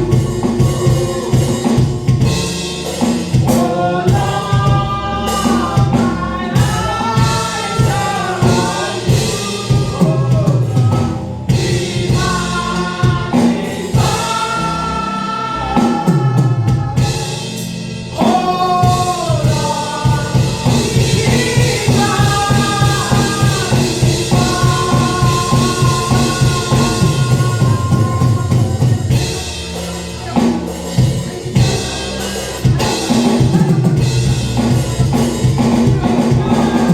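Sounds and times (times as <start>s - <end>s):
band with drum beat: 0.0s - 36.9s
voices singing: 0.0s - 36.9s.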